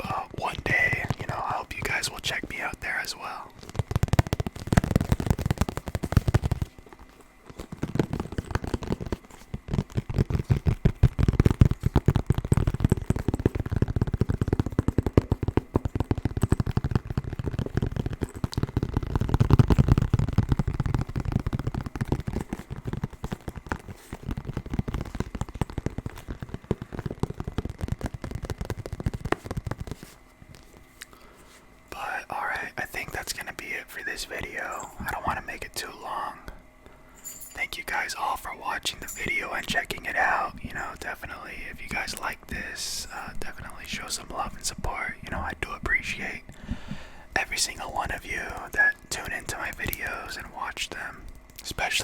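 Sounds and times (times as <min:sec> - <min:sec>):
fingernail tapping and scratching: 0:03.5 - 0:30.9.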